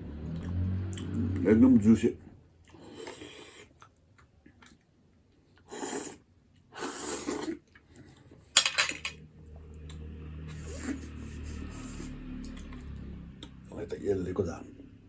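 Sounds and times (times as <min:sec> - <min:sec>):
noisy slurping: 0:00.1 - 0:01.8, 0:09.8 - 0:13.6.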